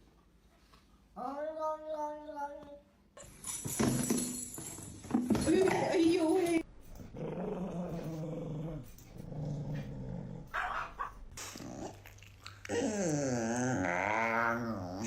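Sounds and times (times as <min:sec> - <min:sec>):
dog growling: 0:07.0 - 0:15.0.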